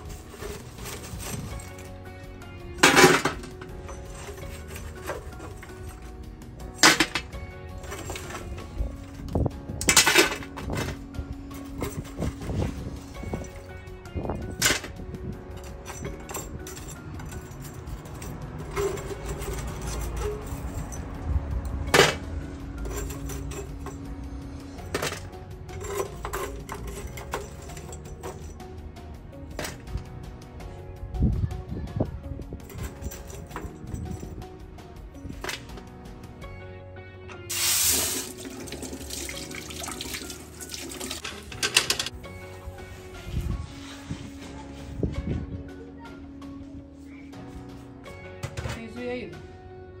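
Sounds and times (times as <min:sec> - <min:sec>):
metal spoon scraping charcoal: 0:00.0 - 0:02.1, 0:02.8 - 0:06.1, 0:15.6 - 0:21.1, 0:22.8 - 0:28.5, 0:37.5 - 0:39.4
tap water running into a pot: 0:37.5 - 0:41.5.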